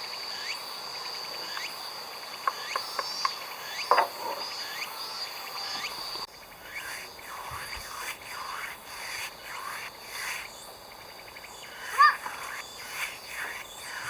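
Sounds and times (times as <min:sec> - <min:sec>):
insects chirping and buzzing: 0:00.0 - 0:14.0
loud bird call: 0:11.7 - 0:14.0.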